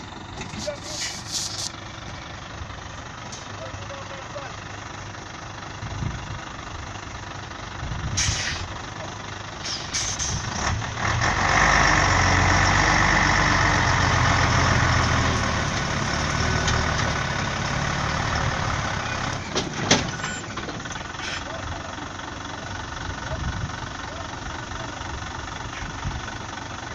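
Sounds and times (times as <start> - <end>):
truck diesel engine pulling hard: 0.0 - 26.9
short hiss: 0.6 - 1.8, 8.2 - 8.7, 9.6 - 10.4.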